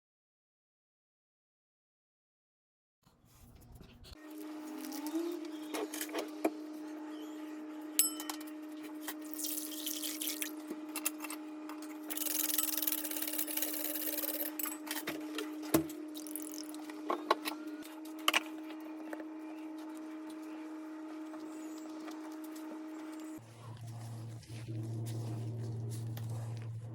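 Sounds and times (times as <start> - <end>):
electrical hum: 3.2 - 26.9
utensils and dishes clinking: 8.0 - 11.4, 12.1 - 15.5
water running from a tap: 9.3 - 10.6.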